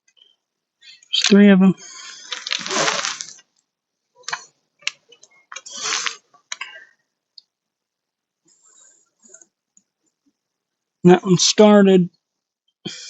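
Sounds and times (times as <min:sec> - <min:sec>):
short scrape: 0:02.0 - 0:03.4, 0:05.7 - 0:06.2.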